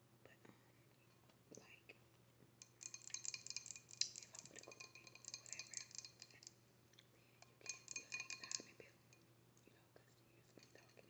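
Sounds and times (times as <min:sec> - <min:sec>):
seafood shells crackling while eating: 0:02.6 - 0:06.6.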